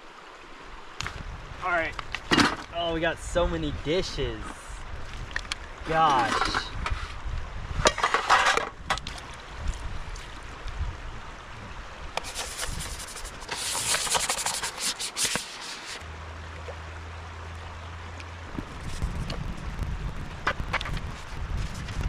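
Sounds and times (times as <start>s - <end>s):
running river water: 0.0s - 22.0s
dishes being scrubbed: 12.2s - 16.0s
low steady hum: 16.0s - 22.0s.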